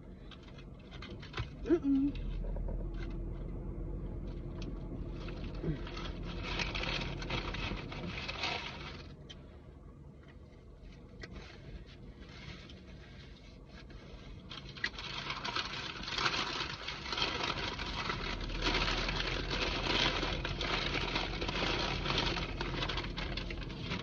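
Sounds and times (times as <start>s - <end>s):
paper bag rustling and crinkling: 4.5s - 9.2s, 12.2s - 24.0s.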